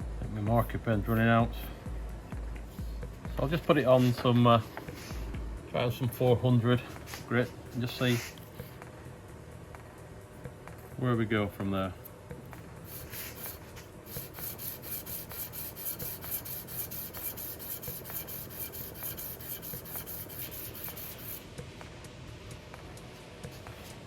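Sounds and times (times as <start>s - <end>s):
metal scraping on abrasive: 3.5s - 5.2s, 12.8s - 21.4s.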